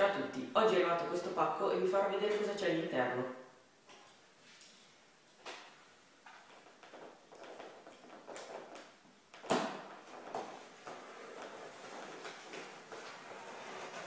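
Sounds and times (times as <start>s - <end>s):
cardboard parcel being handled: 6.5s - 14.0s.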